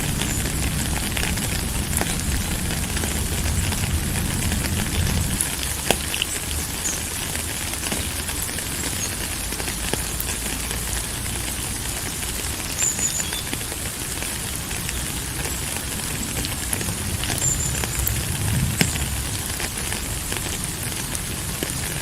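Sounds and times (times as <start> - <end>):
rain falling: 0.0 - 22.0
low rumble: 16.9 - 20.5.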